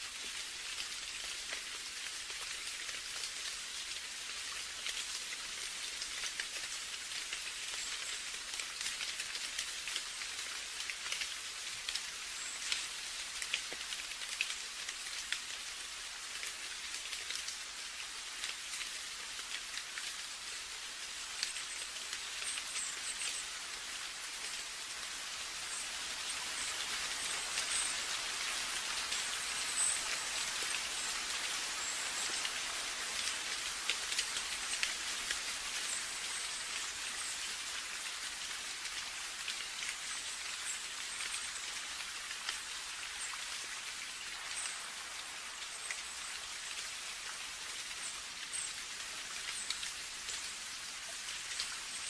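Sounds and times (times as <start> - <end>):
steady rain with ticking drops: 0.0 - 52.0.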